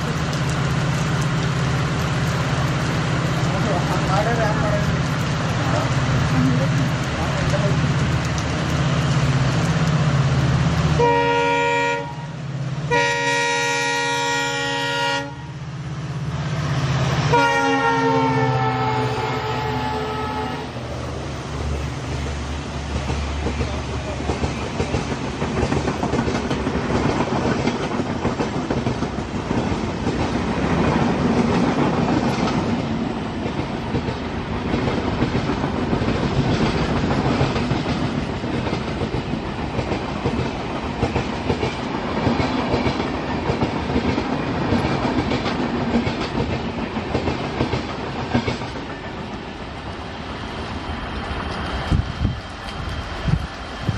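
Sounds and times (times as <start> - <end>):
train horn: 11.0 - 15.6, 17.3 - 20.8
rushing air: 19.0 - 45.8, 46.6 - 53.9
train wheels clattering over joints: 22.1 - 32.7.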